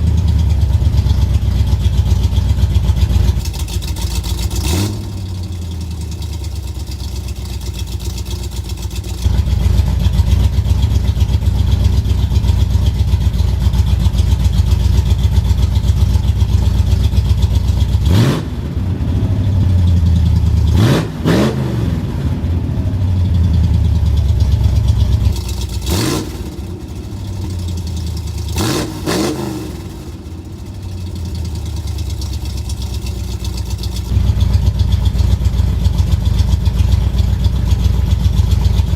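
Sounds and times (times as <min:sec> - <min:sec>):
loud choppy engine idling: 0:00.0 - 0:38.9
engine revving: 0:02.9 - 0:09.6, 0:15.2 - 0:23.1, 0:23.7 - 0:34.2.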